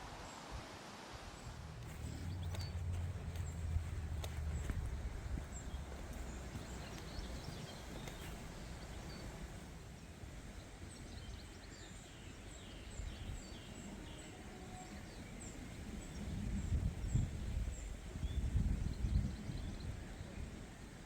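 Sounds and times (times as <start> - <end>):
steady low rumble: 1.4 - 11.0
small birds singing: 1.4 - 21.0.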